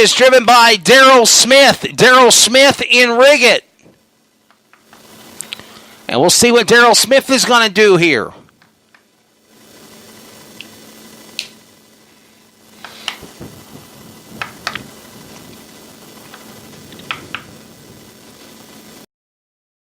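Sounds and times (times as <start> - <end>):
low steady hum and hiss: 0.0 - 19.0
sharp clicks and pops: 3.8 - 5.9, 8.4 - 9.2, 10.5 - 11.7, 12.7 - 18.7.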